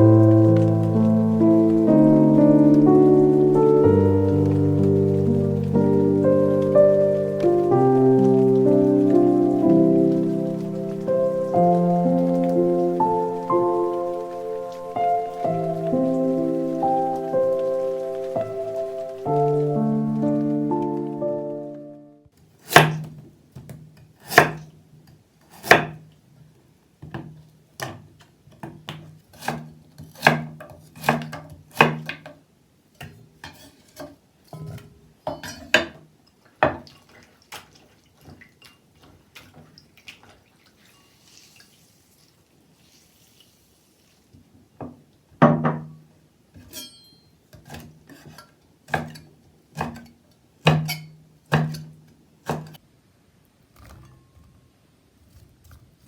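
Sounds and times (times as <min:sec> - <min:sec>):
knife chopping on wooden board: 0:22.6 - 0:23.2, 0:24.2 - 0:24.7, 0:25.6 - 0:26.0, 0:28.6 - 0:32.3, 0:50.7 - 0:51.9, 0:52.5 - 0:52.8.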